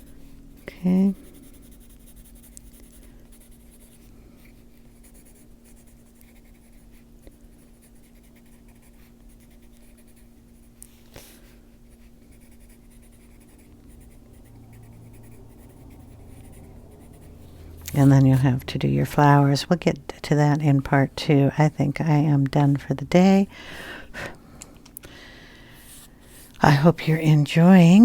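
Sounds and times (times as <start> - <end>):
pencil scratching on paper: 0.0 - 18.6.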